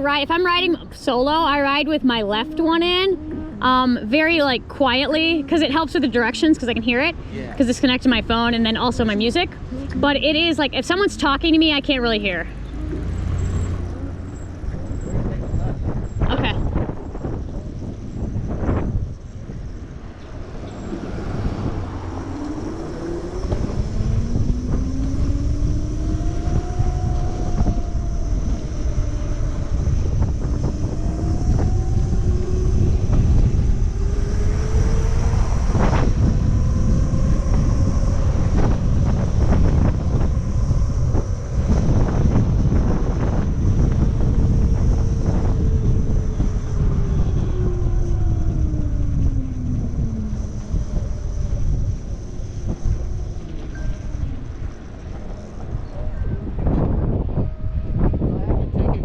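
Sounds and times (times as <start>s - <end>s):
wind buffeting microphone: 0.0s - 59.0s
electric motor whine: 12.6s - 58.4s.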